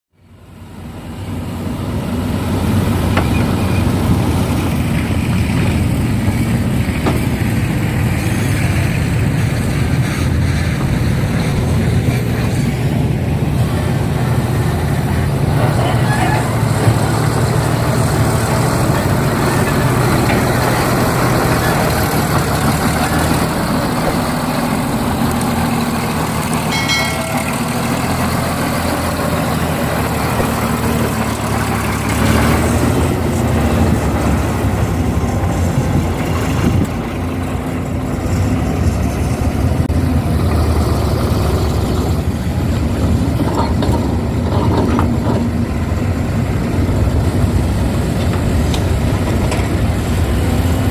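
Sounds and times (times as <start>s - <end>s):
heavy diesel engines running: 0.1s - 50.9s
excavator loading soil into truck: 14.7s - 37.1s, 42.2s - 50.9s.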